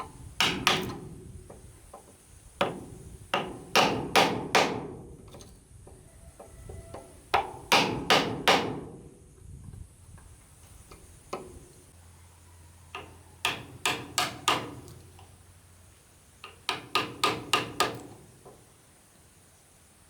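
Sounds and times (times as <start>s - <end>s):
hammer blows on wood: 6.4s - 9.0s.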